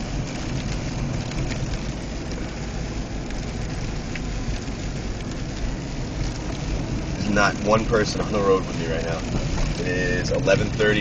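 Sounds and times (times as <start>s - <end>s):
hail ticking on car: 0.0s - 11.0s
road and engine noise: 0.0s - 11.0s.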